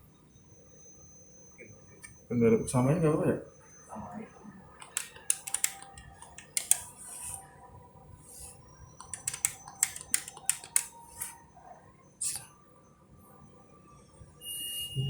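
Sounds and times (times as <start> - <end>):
banking machine keys clicking: 4.8 - 7.0, 9.0 - 11.4.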